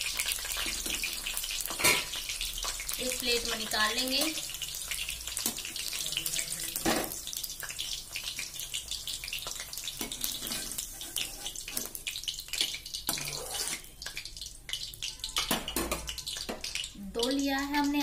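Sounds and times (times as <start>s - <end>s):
cauliflower sizzling in oil: 0.0s - 18.0s
skimmer scraping a pan: 10.0s - 12.0s, 13.1s - 13.9s.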